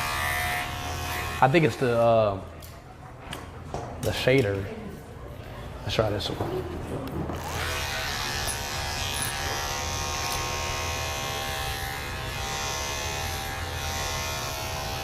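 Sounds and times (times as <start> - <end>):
electric clippers buzzing: 0.0 - 2.0, 7.3 - 15.0.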